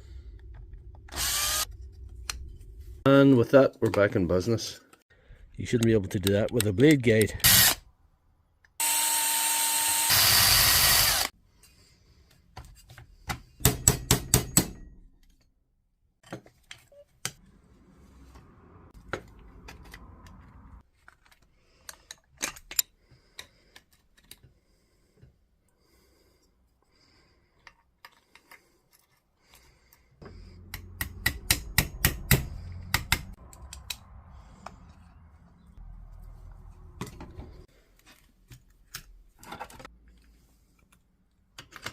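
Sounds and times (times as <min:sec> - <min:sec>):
power tool running: 0:01.1 - 0:01.7, 0:08.8 - 0:11.3
plastic and metal parts clicking: 0:40.8 - 0:41.9.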